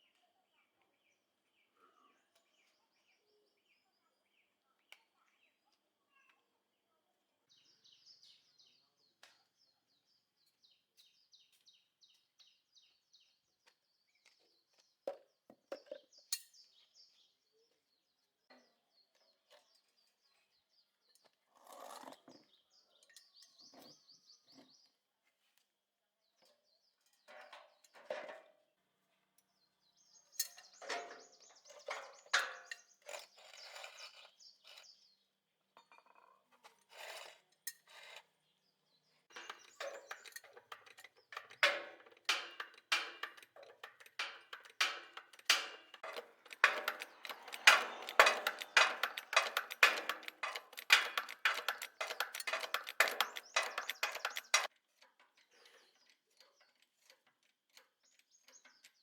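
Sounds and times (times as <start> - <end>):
birds chirping in trills: 39.3 - 54.7
knocks and clinks: 39.3 - 54.7.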